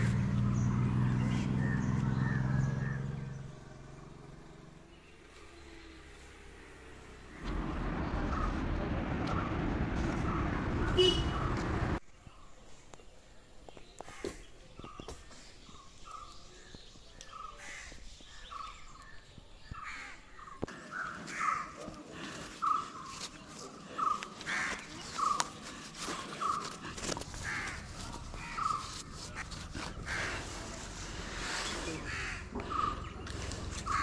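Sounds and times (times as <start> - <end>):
bird calling: 23.9 - 34.0.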